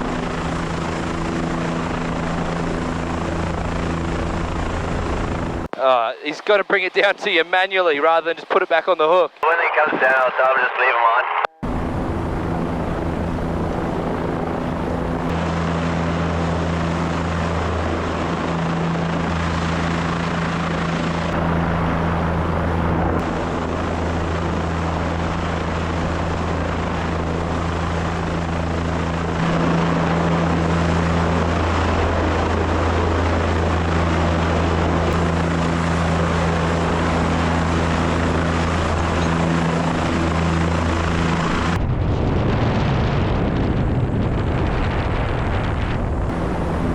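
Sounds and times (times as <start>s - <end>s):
helicopter rotor and engine: 0.0s - 46.9s.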